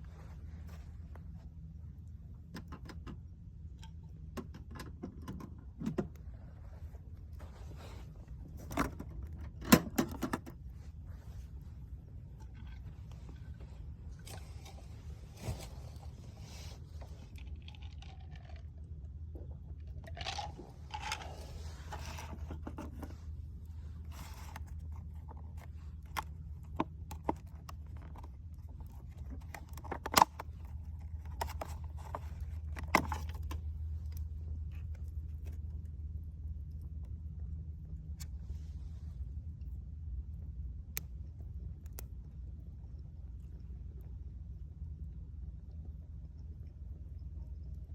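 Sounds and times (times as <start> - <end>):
scraping and rustling: 20.1 - 33.7.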